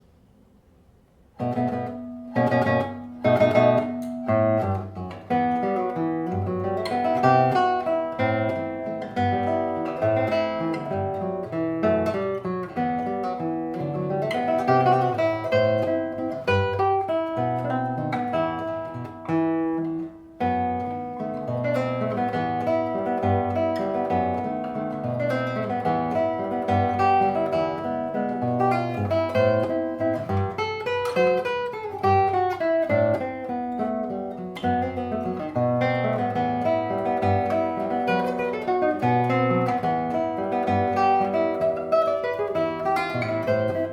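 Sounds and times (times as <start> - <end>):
solo classical guitar waltz: 1.2 - 43.9.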